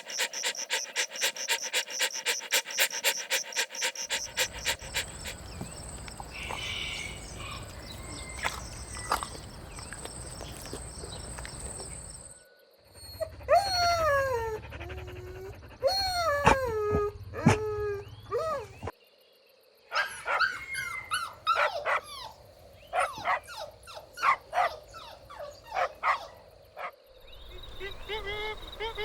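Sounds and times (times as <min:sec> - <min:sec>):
puppies whining: 0:00.0 - 0:12.3
puppies yipping: 0:00.0 - 0:12.3.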